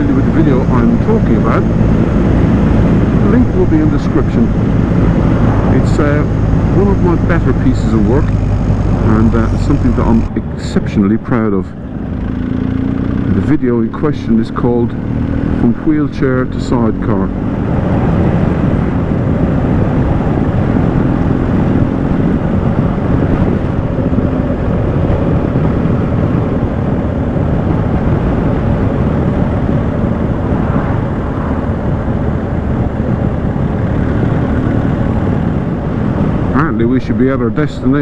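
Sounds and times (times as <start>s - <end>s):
motorcycle engine hum: 0.0s - 38.0s
wind and road rush: 0.0s - 38.0s.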